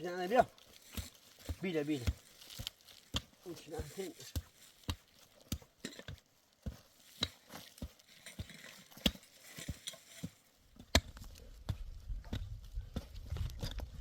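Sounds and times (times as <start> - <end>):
hooves clopping on stony ground: 0.0 - 14.0
wind rumble on microphone: 11.4 - 14.0.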